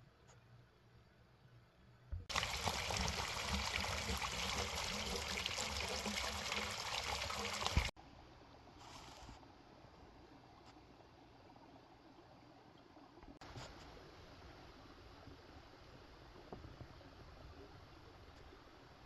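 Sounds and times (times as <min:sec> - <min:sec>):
water pouring: 0:02.3 - 0:08.0.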